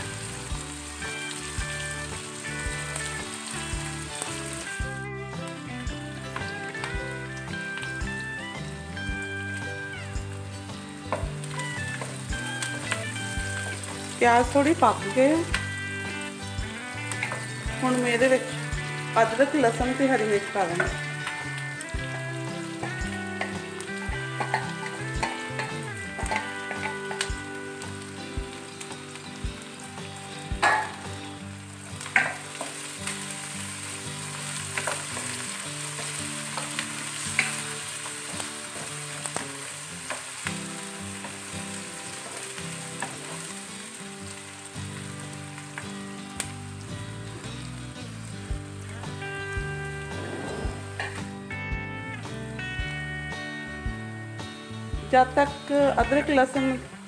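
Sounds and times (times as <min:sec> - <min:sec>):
food sizzling in hot oil: 0:00.0 - 0:57.0.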